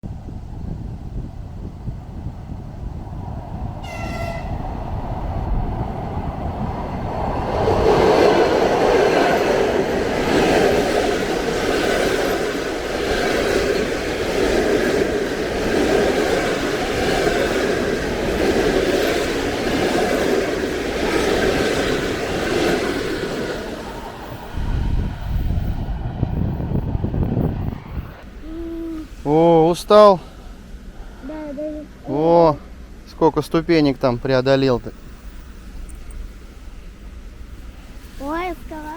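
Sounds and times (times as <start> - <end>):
train wheels rumbling and clattering: 0.0 - 31.2, 31.9 - 38.9
train horn blast: 3.8 - 4.8.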